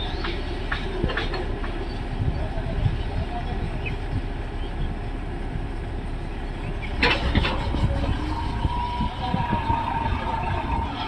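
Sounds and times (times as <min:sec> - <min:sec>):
backhoe engine rumbling: 0:00.0 - 0:11.0
steady whine: 0:04.2 - 0:11.0.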